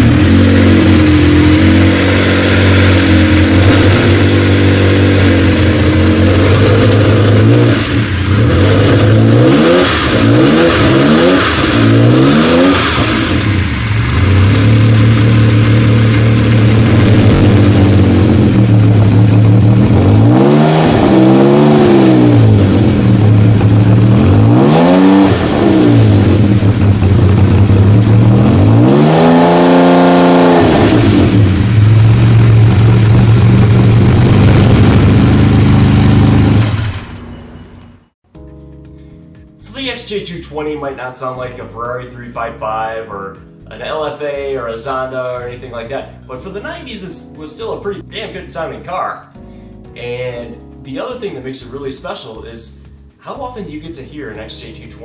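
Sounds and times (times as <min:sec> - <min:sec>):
car engine idling and revving: 0:00.0 - 0:38.3.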